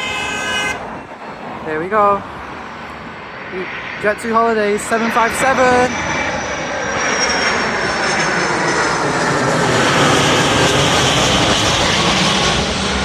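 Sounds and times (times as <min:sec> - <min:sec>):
jet airliner engine roar: 0:00.0 - 0:13.0.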